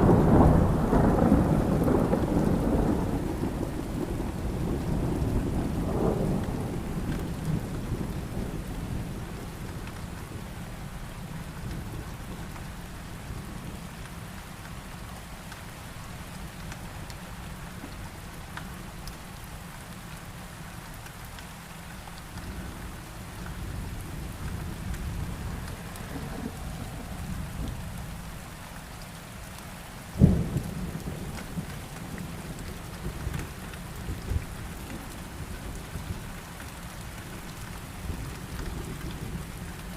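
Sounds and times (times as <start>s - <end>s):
thunder rumble: 0.0s - 10.6s, 22.4s - 29.0s, 30.2s - 36.2s
rain falling: 0.0s - 39.9s.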